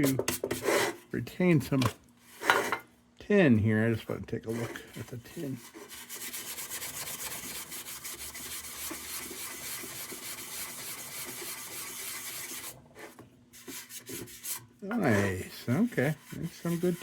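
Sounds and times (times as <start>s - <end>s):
abrasive scratching on metal: 13.6s - 17.0s.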